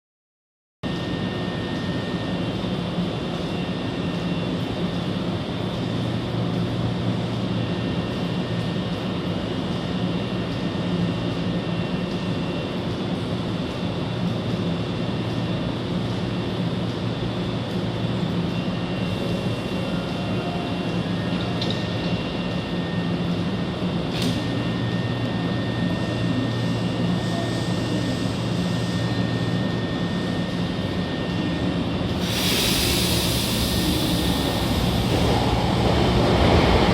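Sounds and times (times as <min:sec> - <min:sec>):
train equipment hum: 0:14.1 - 0:36.9.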